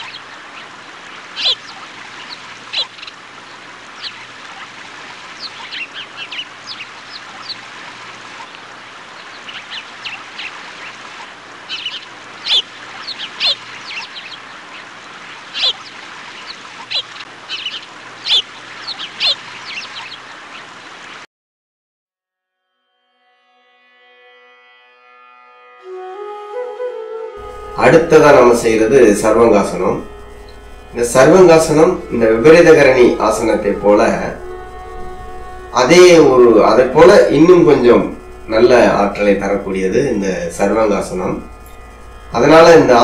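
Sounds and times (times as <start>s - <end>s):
birds calling: 0.0s - 21.2s, 27.4s - 43.0s
faint low hum: 27.4s - 43.0s
steady hiss: 27.4s - 43.0s.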